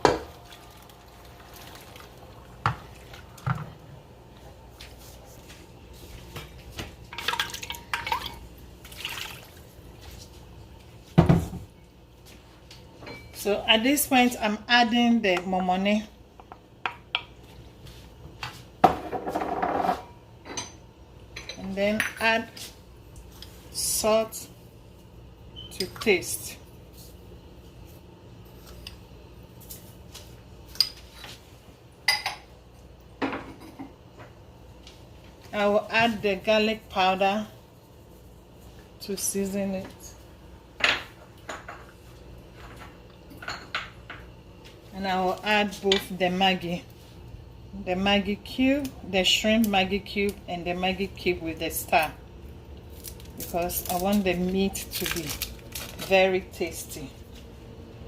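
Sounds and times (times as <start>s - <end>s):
liquid pouring and dripping: 0.3s - 3.3s
kitchenware clinking: 7.1s - 8.4s, 18.8s - 22.3s, 32.0s - 32.5s, 40.8s - 44.3s.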